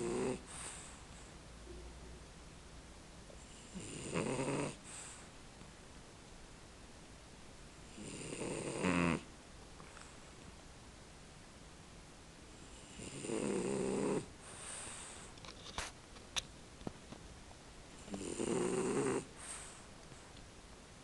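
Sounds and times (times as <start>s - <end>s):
dog snoring: 0.0s - 1.0s, 3.4s - 5.2s, 7.9s - 9.3s, 12.7s - 15.3s, 18.0s - 19.8s.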